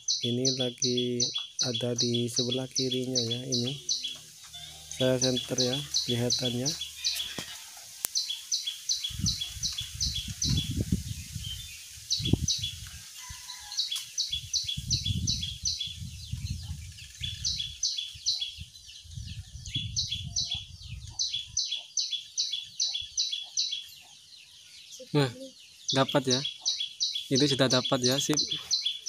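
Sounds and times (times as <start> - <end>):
bird chirping: 0.0 - 29.0.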